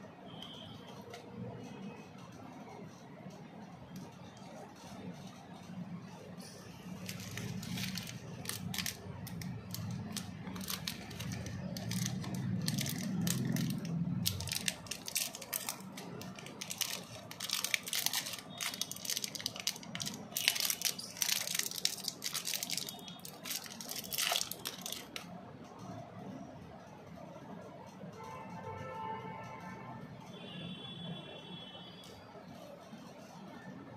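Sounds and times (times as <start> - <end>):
wrappers crinkling and tearing: 6.7 - 25.3.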